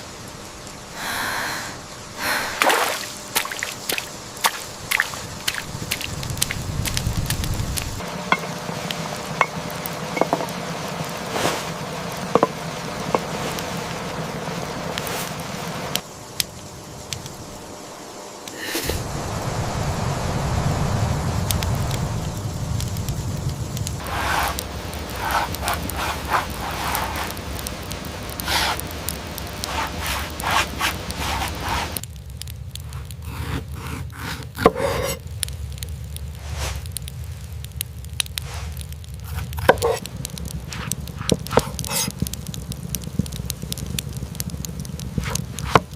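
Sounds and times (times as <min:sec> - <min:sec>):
rain hissing: 0:00.0 - 0:45.9
scraping and rubbing strokes: 0:11.2 - 0:13.8, 0:15.0 - 0:15.4, 0:24.0 - 0:28.9, 0:29.5 - 0:32.0, 0:32.9 - 0:35.2, 0:36.4 - 0:36.9, 0:38.4 - 0:42.2, 0:45.2 - 0:45.9
clicks and taps: 0:12.4 - 0:12.6.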